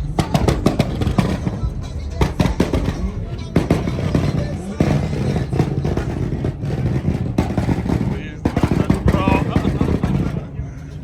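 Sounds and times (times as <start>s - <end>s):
music: 0.0s - 5.4s
car engines running: 0.0s - 11.0s
voices: 0.0s - 11.0s.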